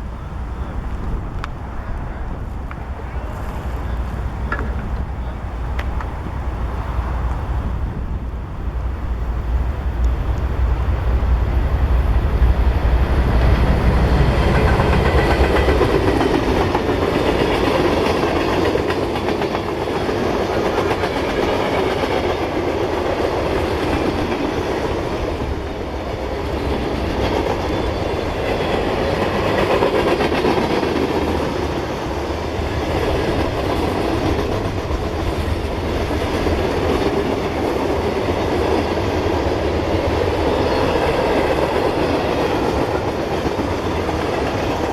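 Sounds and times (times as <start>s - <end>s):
train wheels clicking over rail joints: 0.0s - 8.9s, 12.5s - 44.9s
deep diesel rumble: 0.0s - 11.5s.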